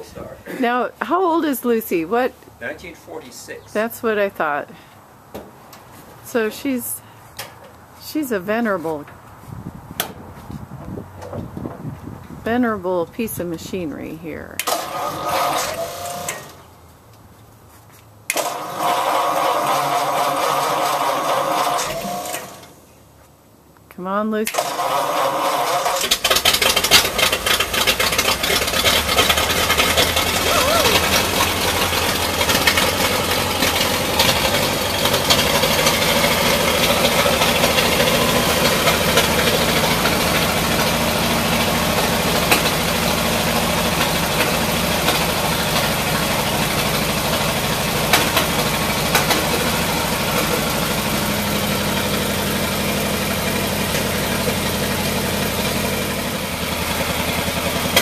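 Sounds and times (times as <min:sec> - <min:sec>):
truck engine running: 0:24.6 - 0:58.0.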